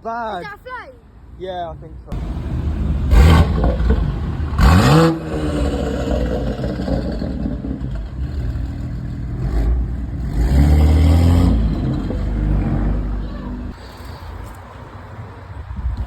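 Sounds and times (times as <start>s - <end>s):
car engine revving: 2.2s - 13.8s.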